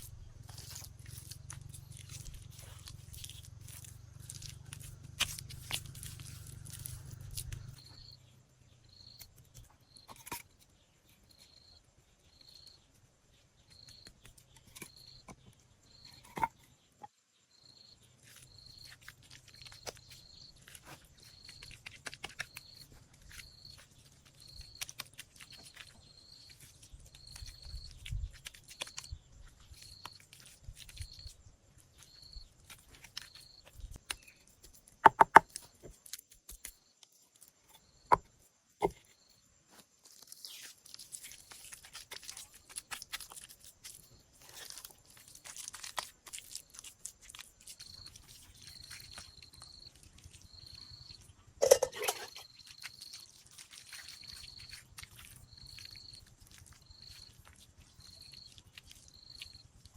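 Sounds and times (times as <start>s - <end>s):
rustling: 0.0s - 8.1s
insect chirping: 0.0s - 59.9s.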